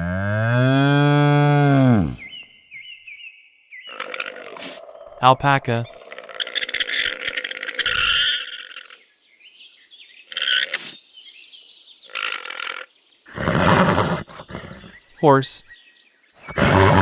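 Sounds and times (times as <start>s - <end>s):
alpaca rasping grunts: 4.4s - 4.8s, 13.3s - 14.9s, 16.4s - 17.0s.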